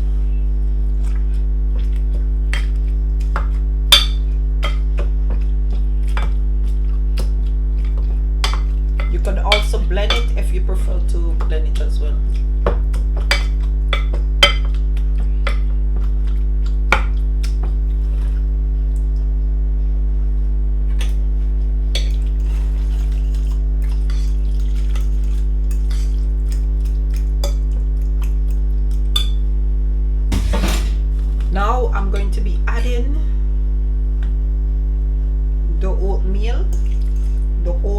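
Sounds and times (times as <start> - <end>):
loud steady low hum: 0.0 - 37.9
utensil clinking against a bowl: 7.8 - 10.6, 11.2 - 14.8, 22.0 - 29.5, 36.7 - 37.4.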